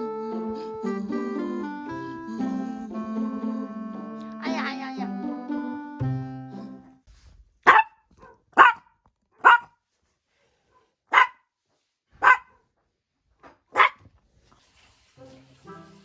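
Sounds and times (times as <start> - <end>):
dog barking: 7.6 - 9.8, 11.1 - 11.4, 12.2 - 12.6, 13.8 - 14.1.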